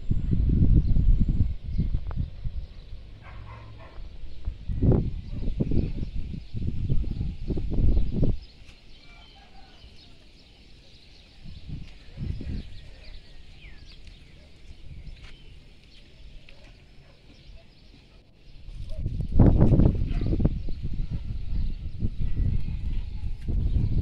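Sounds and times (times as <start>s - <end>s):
low rumble on microphone: 0.0s - 8.6s, 11.3s - 15.5s, 18.6s - 24.0s
birds chirping and calling: 0.0s - 24.0s.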